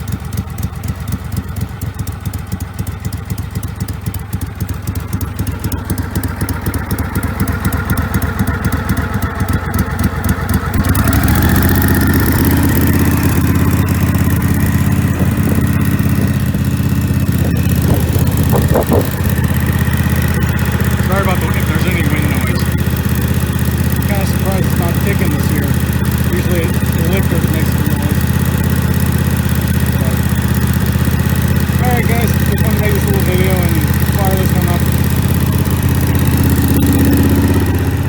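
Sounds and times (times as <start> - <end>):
garden tractor engine idling: 0.0 - 38.0.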